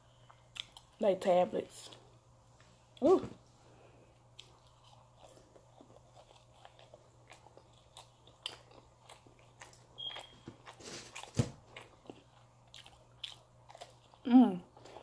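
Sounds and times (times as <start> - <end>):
person chewing pizza: 0.2 - 1.0, 4.0 - 15.0.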